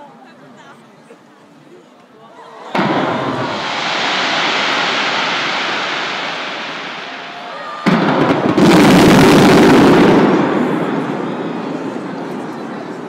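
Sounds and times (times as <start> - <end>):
fireworks bursting and crackling: 2.8 - 13.0.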